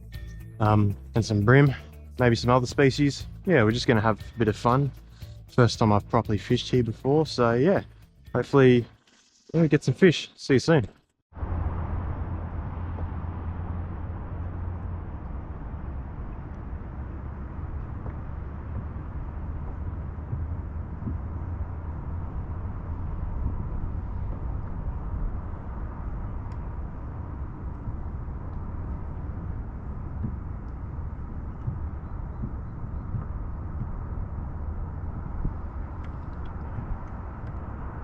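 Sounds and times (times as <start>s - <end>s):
wind rumbling on microphone: 11.4s - 38.0s.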